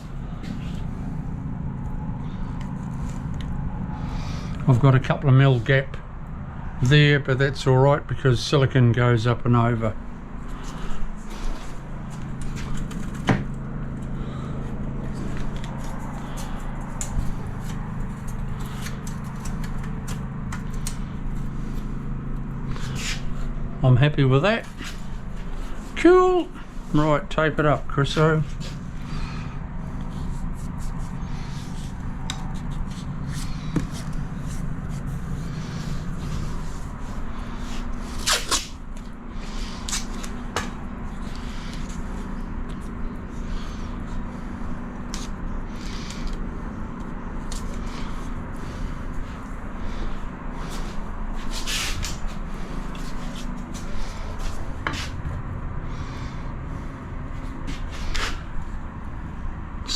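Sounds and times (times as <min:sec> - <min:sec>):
low background hum: 0:00.0 - 0:59.9
adhesive tape tearing: 0:37.7 - 0:38.8, 0:39.6 - 0:40.7.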